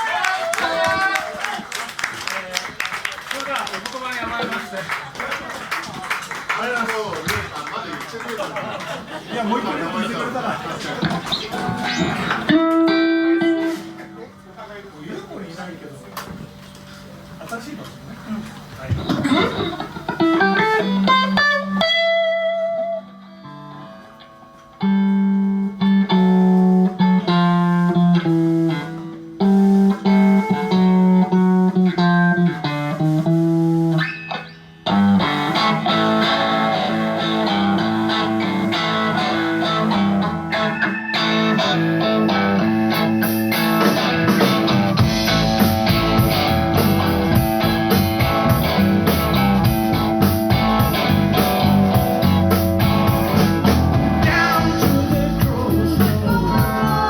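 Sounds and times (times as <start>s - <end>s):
bass guitar: 11.0s - 14.4s, 18.6s - 57.0s
electric guitar phrases: 11.0s - 14.5s, 19.6s - 57.0s
cymbals keeping a beat: 40.7s - 56.9s.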